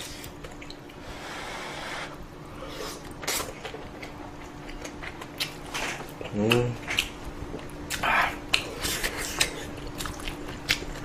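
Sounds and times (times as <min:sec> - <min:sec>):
faint steady hum: 0:00.0 - 0:11.0
chewing clicks and smacks: 0:03.3 - 0:11.0.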